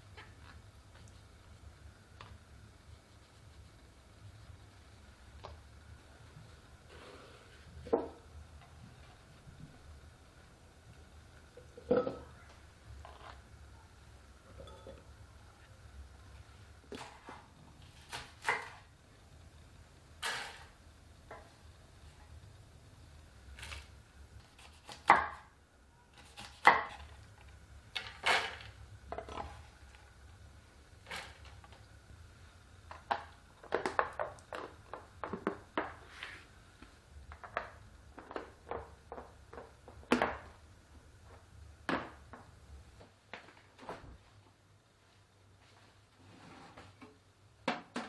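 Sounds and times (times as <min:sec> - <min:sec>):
kitchen work knocks and clicks: 0:07.8 - 0:08.2, 0:32.9 - 0:36.1, 0:37.3 - 0:40.6, 0:41.3 - 0:42.5, 0:47.0 - 0:48.0.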